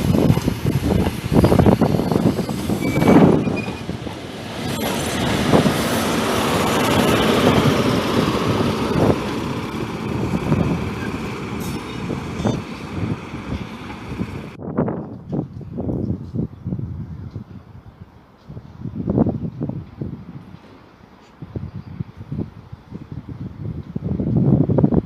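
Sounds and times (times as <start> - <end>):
train rolling rumble: 0.0 - 17.6
wind buffeting microphone: 0.0 - 20.8, 21.4 - 25.0.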